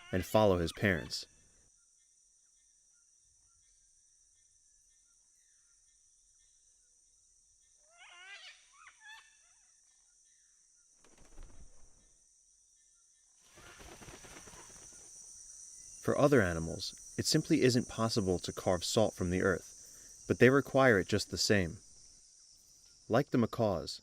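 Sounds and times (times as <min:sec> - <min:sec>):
high insect drone: 0:00.0 - 0:24.0
bird wavering calls: 0:07.8 - 0:10.4, 0:13.4 - 0:15.1.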